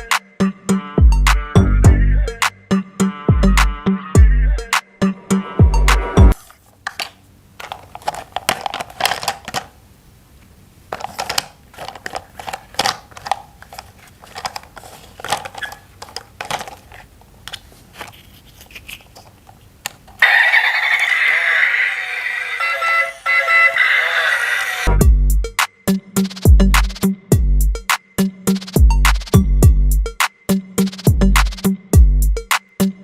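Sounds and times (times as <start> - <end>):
background music: 0.0 - 6.4, 22.6 - 33.0
plastic crinkling: 6.4 - 9.8, 10.4 - 20.2
plastic parts clicking: 6.4 - 9.8, 10.9 - 20.2.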